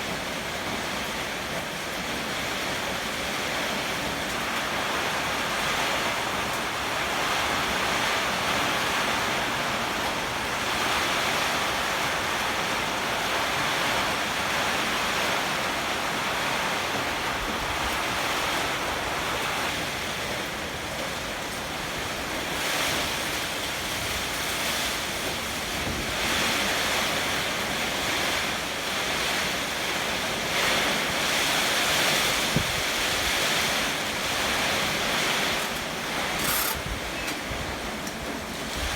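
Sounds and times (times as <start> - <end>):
heavy rain: 0.0 - 38.9
strong gusting wind: 31.1 - 38.9
wind buffeting microphone: 32.3 - 37.9.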